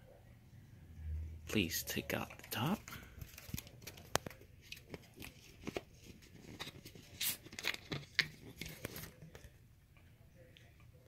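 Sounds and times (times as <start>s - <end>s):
plastic bottle crackling: 2.2s - 9.5s.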